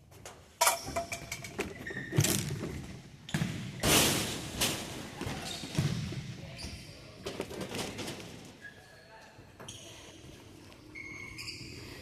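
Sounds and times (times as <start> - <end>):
ball kicked and bouncing indoors: 0.0 - 8.6.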